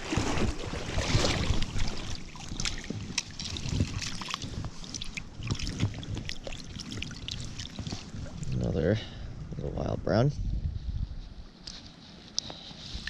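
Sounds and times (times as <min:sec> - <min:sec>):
water splashing and trickling: 0:00.0 - 0:08.9.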